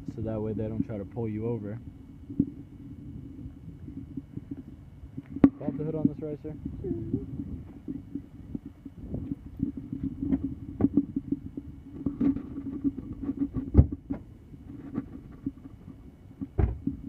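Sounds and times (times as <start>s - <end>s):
dull thump: 16.4s - 17.0s.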